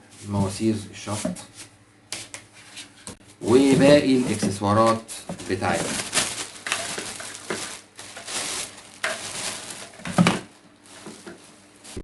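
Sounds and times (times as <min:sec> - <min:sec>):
parts being handled: 0:02.3 - 0:12.0
packaging rustling: 0:05.3 - 0:12.0.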